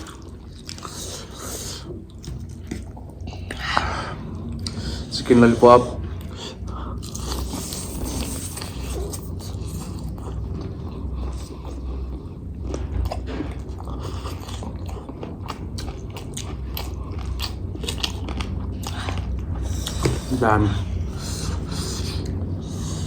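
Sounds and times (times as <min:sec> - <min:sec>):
biting and chewing crispy food: 0:07.0 - 0:20.6.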